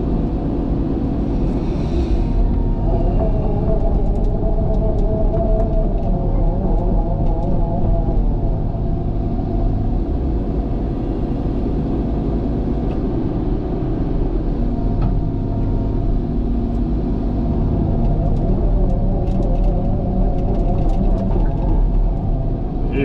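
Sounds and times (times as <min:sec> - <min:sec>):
heavy diesel machine running: 0:00.0 - 0:23.0.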